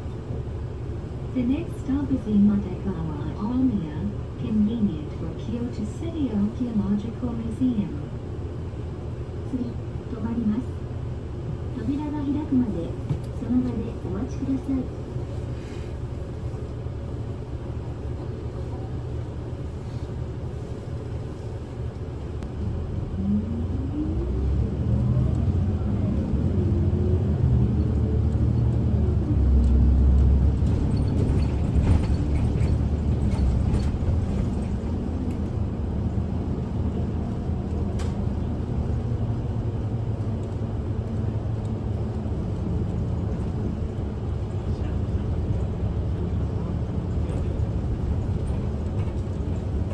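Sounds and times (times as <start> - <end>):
bus engine and road rumble: 0.0 - 49.9
rising engine whine: 22.4 - 30.8.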